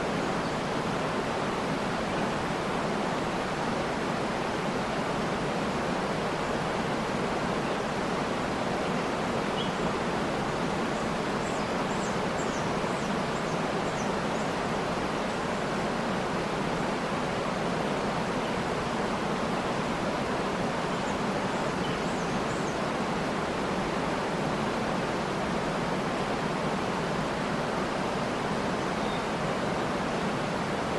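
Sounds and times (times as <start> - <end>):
faint high bird chirps: 28.9 - 29.3.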